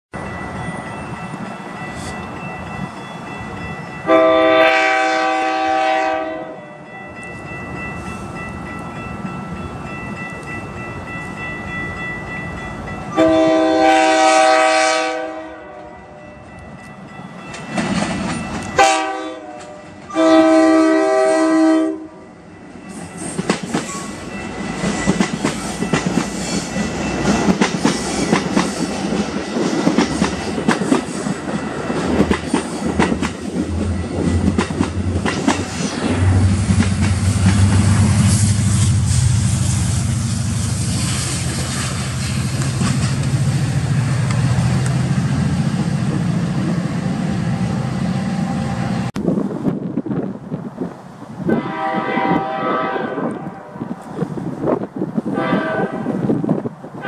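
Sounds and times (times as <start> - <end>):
train horn blasts: 4.0 - 6.9, 13.1 - 16.4, 18.8 - 22.3, 51.5 - 54.0, 55.3 - 56.3
train wheels clicking over rail joints: 17.4 - 18.8, 22.8 - 39.2, 40.9 - 45.1.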